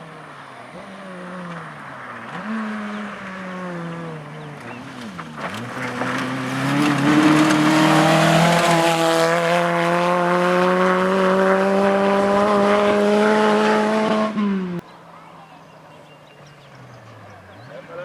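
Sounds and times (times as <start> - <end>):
rally car engine accelerating: 0.1 - 14.8.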